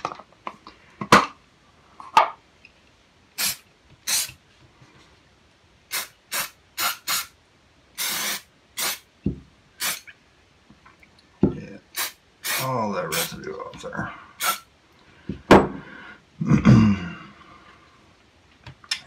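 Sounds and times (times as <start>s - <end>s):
spray hissing squirts: 3.4s - 4.4s, 5.9s - 7.3s, 8.0s - 9.0s, 9.8s - 10.1s, 12.0s - 13.3s, 14.4s - 14.6s.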